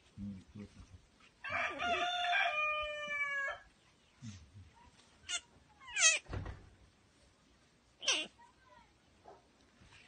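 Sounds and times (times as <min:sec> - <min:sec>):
rooster crowing: 0:01.4 - 0:03.7.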